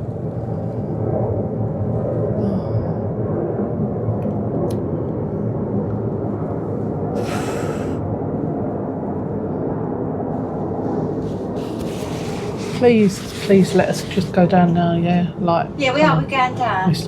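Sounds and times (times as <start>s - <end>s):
low rumble inside a gondola: 0.0s - 17.0s.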